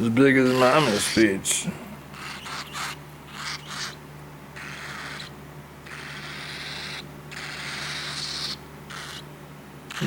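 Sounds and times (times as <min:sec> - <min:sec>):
cockatiel chick raspy hissing calls: 0:00.4 - 0:01.3, 0:02.1 - 0:04.0, 0:04.6 - 0:09.3.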